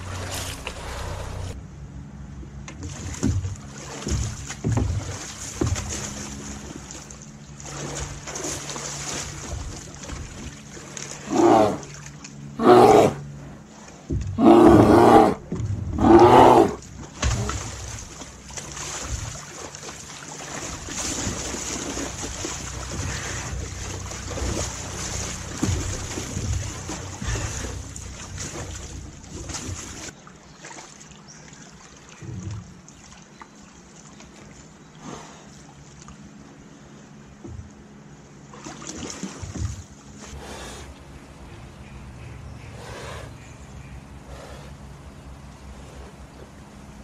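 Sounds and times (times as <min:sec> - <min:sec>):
water noise: 0:00.0 - 0:47.0
wind: 0:00.0 - 0:47.0
large animal calling: 0:11.3 - 0:11.9, 0:12.6 - 0:13.2, 0:14.4 - 0:15.4, 0:16.0 - 0:16.8.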